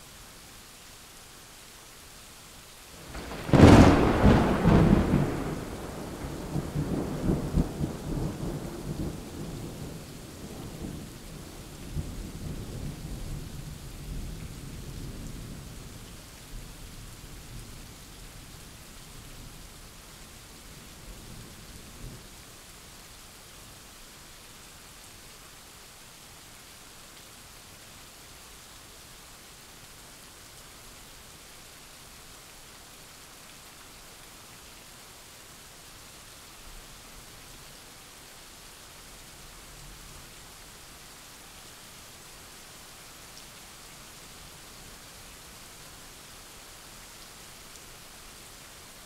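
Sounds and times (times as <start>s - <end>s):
rain hissing: 0.0s - 23.1s
thunderclap with rolling rumble: 3.1s - 9.9s.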